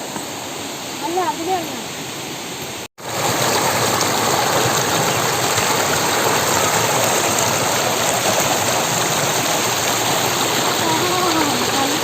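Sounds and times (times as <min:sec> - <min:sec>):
waterfall rushing water: 0:00.0 - 0:12.0.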